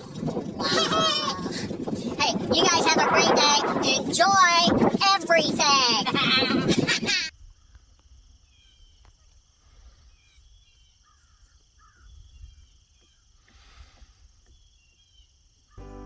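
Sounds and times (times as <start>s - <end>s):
low wind rumble: 0.0s - 16.0s
faint bird calls: 8.4s - 15.9s
music: 15.8s - 16.0s.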